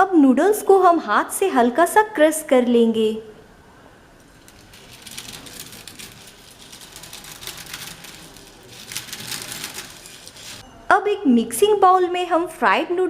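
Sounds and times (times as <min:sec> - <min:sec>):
fried noodles crackling crushed: 0:04.2 - 0:10.6.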